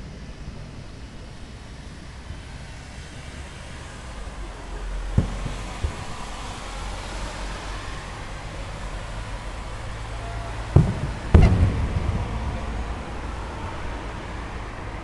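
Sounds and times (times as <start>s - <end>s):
firework shells bursting: 5.2s - 7.0s, 10.7s - 13.7s
low background rumble: 10.2s - 15.0s.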